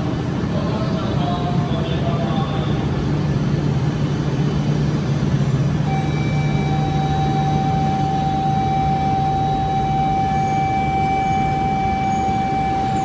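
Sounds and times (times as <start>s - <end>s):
train low rumble: 0.0s - 13.0s
steady high tone: 5.8s - 13.0s.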